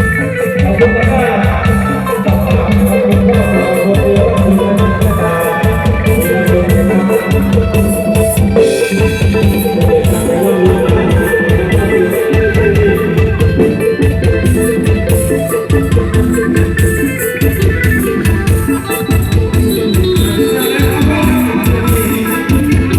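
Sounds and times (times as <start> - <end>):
heavy drum beat: 0.0 - 22.9
loud procession music over speakers: 0.0 - 22.9
plucked guitar: 0.0 - 22.9.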